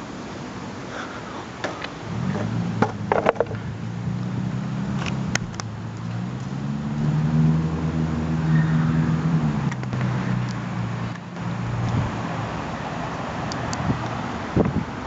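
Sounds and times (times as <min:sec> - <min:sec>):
car engine running: 0:01.9 - 0:13.2.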